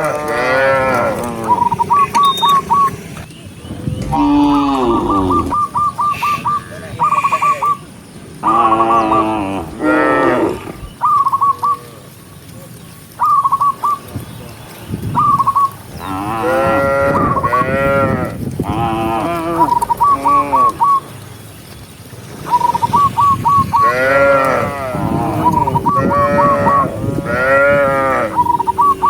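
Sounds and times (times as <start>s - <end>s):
cattle mooing: 0.0s - 2.7s, 4.0s - 5.6s, 16.0s - 20.8s, 23.8s - 29.0s.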